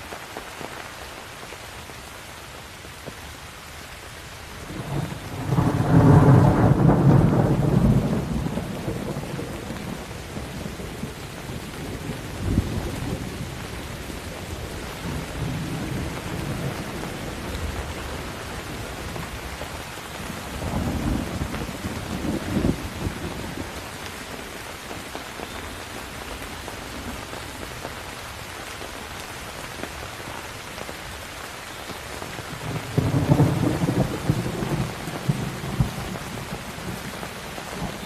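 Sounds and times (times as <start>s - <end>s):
steady rain: 0.0s - 38.0s
thunder rumbling: 4.7s - 24.6s, 32.5s - 38.0s.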